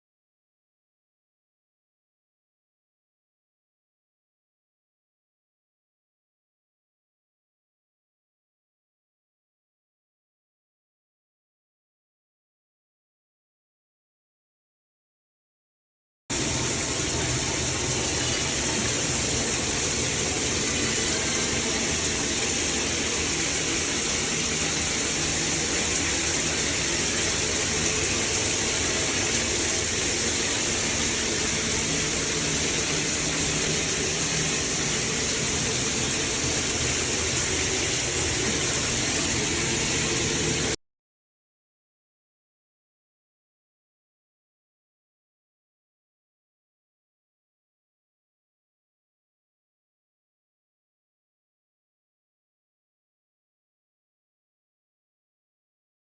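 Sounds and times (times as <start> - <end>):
shower head spraying water: 16.3 - 40.8.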